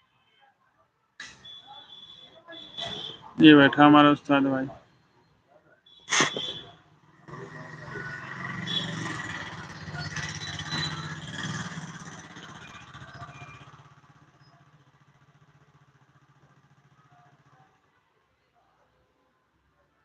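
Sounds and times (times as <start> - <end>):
motorcycle engine running: 6.2 - 17.9.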